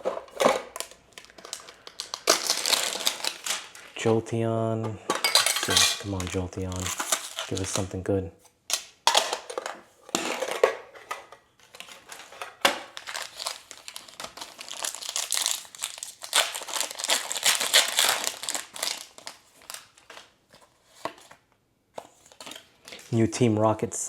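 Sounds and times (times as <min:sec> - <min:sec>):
foil wrapper tearing and crinkling: 0:00.8 - 0:04.0, 0:06.0 - 0:07.9, 0:12.9 - 0:20.3.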